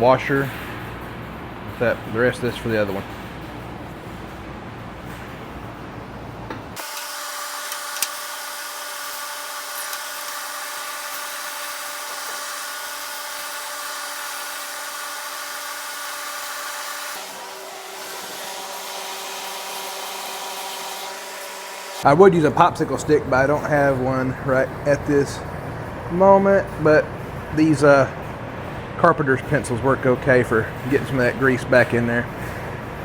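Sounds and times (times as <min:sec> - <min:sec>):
small motor whining: 0:06.8 - 0:22.0.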